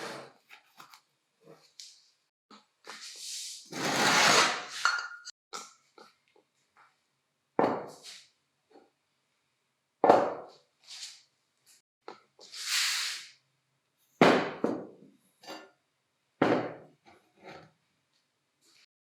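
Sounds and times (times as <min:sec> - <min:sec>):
short burst of hiss: 0:12.6 - 0:13.3.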